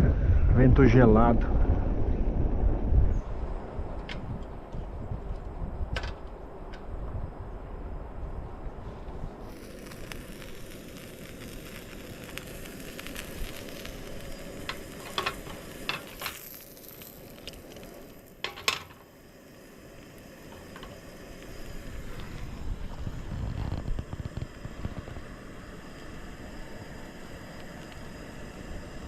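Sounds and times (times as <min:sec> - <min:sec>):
sandwich sizzling in metal toaster: 0:09.4 - 0:29.0.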